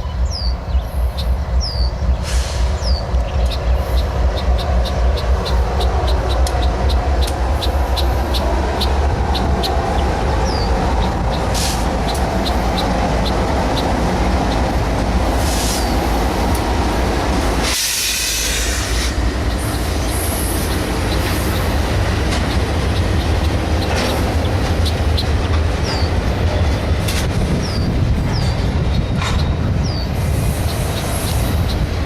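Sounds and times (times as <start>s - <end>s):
freight train rumbling: 0.0s - 32.0s
wheels clicking over rail joints: 19.3s - 32.0s.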